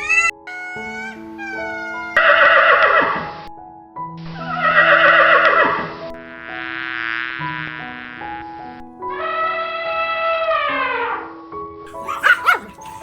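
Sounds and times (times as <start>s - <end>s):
horse whinnying: 11.9s - 13.0s.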